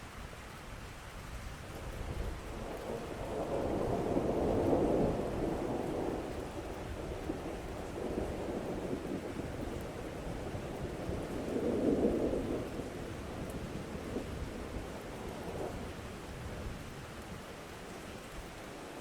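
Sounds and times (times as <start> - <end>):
steady rain: 0.0 - 19.0
rolling thunder: 2.0 - 17.2.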